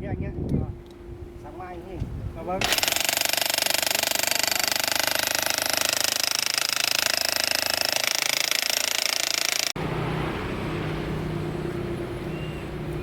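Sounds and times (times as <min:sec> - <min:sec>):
jackhammer breaking concrete: 0:02.6 - 0:09.8.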